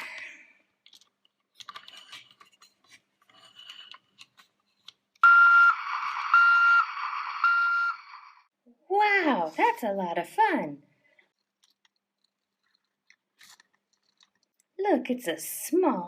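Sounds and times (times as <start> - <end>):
toy reversing beeper: 5.2 - 8.5.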